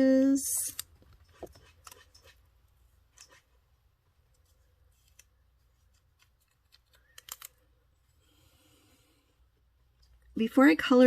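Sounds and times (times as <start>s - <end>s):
small tools clicking: 6.4s - 7.6s.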